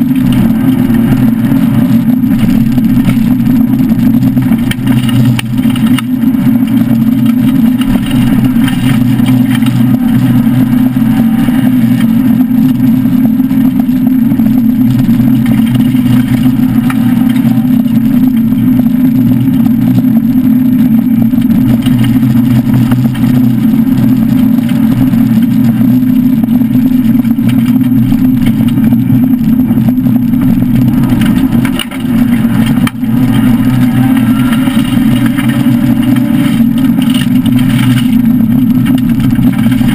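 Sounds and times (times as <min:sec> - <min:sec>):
car engine droning under load: 0:00.0 - 0:39.9.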